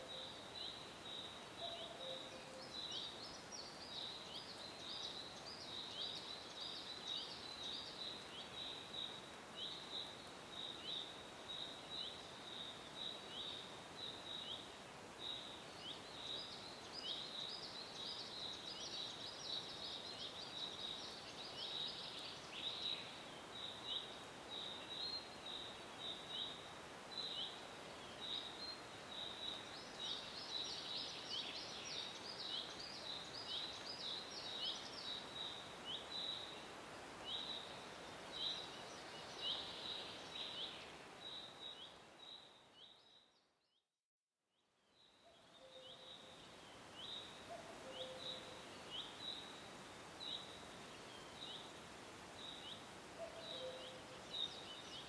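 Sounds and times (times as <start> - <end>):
soft steady hiss: 0.0 - 43.8, 44.5 - 55.0
bird chirping: 44.9 - 49.5, 52.4 - 55.0.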